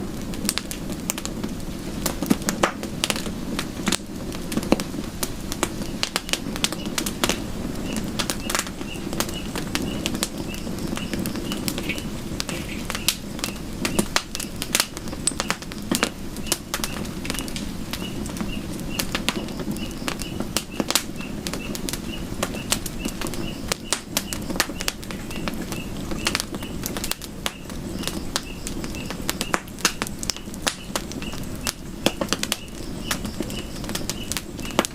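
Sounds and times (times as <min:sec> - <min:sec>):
campfire crackling: 0:00.0 - 0:34.9
faint high chirp: 0:07.8 - 0:26.8, 0:32.6 - 0:34.9.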